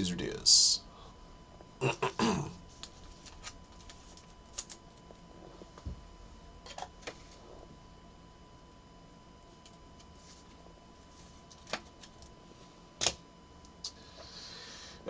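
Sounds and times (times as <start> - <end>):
trading cards rustling and clicking: 2.7 - 5.1.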